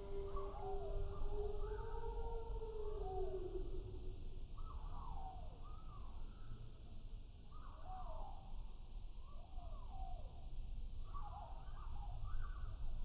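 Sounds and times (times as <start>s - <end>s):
slowed-down birdsong: 0.0s - 6.8s.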